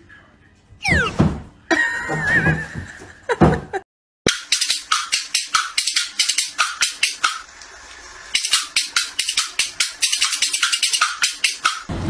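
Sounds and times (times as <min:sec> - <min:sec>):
shaker rhythm: 0:04.3 - 0:07.4, 0:08.3 - 0:11.9.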